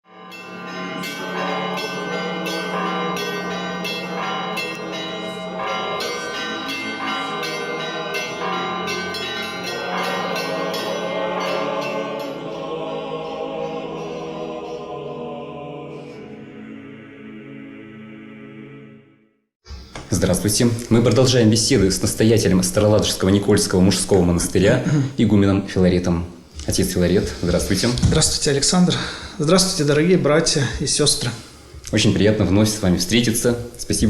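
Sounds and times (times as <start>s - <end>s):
church bells ringing: 0.0s - 15.2s.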